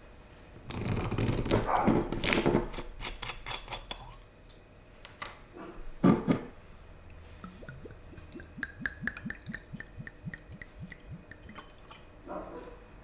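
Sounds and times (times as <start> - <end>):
jam bubbling in a pot: 7.4 - 12.2.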